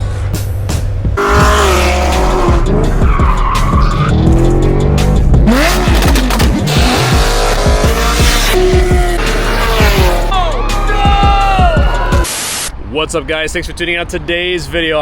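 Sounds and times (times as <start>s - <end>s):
car engines revving hard: 1.2s - 10.3s.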